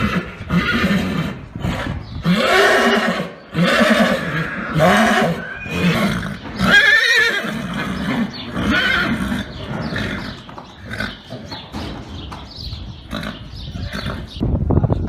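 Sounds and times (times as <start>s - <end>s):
horse neighing: 0.0s - 11.6s.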